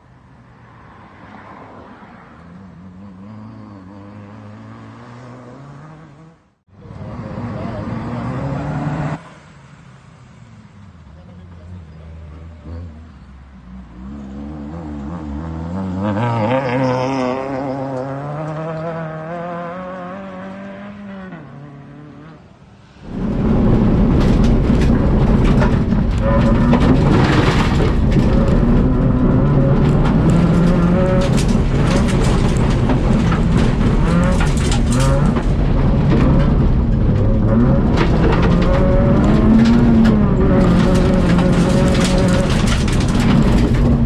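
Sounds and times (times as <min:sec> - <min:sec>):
rally car engine revving: 0:01.3 - 0:09.4, 0:11.2 - 0:44.0
gravel clattering against car: 0:23.1 - 0:44.0.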